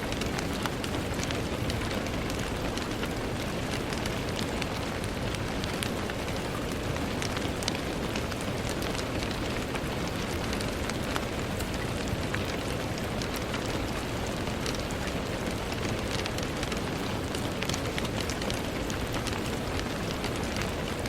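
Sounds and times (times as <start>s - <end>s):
rain falling on a window: 0.0s - 21.0s.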